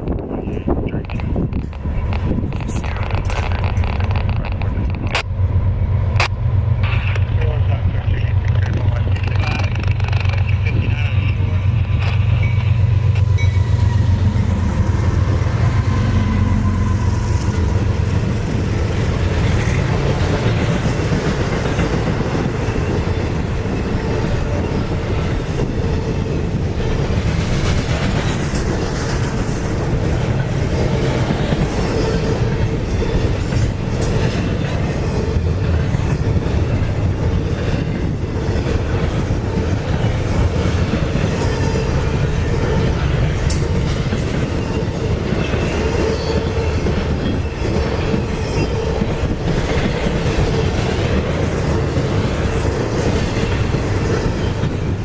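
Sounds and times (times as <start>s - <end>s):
freight train rumble: 0.0s - 55.0s
wheels clacking over rail joints: 1.0s - 5.4s, 8.3s - 10.8s.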